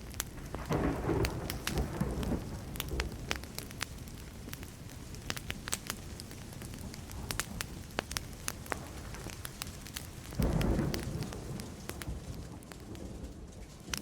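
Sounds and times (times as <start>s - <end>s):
wood fire crackling and popping: 0.0s - 14.0s
distant thunder rumble: 0.3s - 4.3s, 10.3s - 13.6s.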